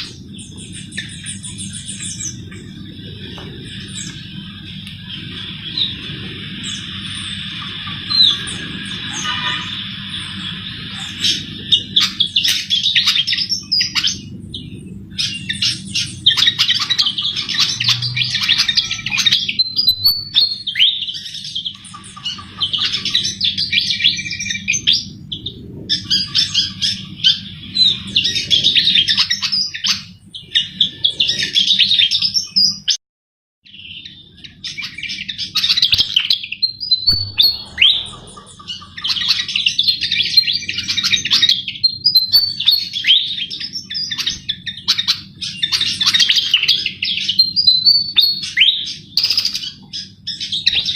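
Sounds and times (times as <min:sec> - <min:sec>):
steady low hum: 0:00.0 - 0:29.4, 0:34.4 - 0:41.8.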